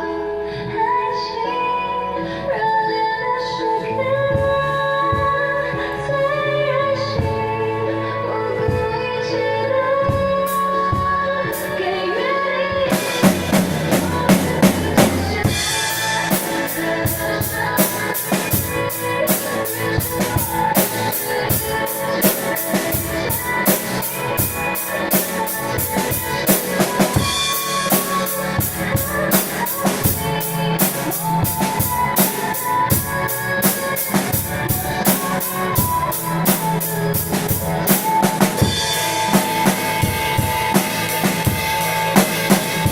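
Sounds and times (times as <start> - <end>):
recorded pop song: 0.0 - 42.9
drum kit playing a beat: 10.0 - 11.8, 12.7 - 42.9.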